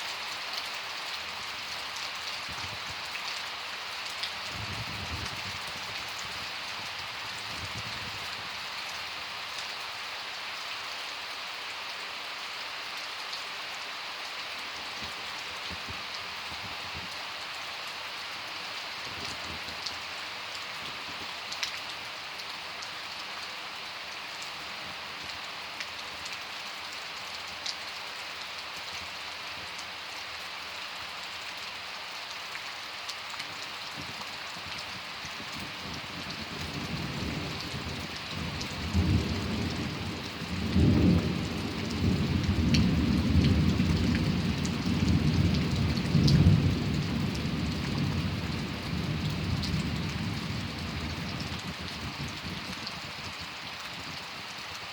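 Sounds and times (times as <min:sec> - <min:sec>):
steady rain falling: 0:00.0 - 0:54.9
thunder rumbling: 0:36.5 - 0:51.8.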